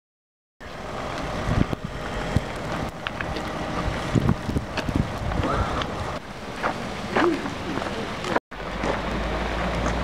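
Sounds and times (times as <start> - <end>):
wind buffeting microphone: 0.9 - 8.4.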